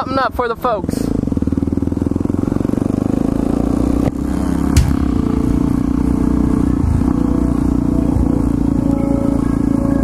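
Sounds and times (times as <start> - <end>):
motorcycle engine idling: 0.0 - 10.0
sharp knock: 4.6 - 5.3.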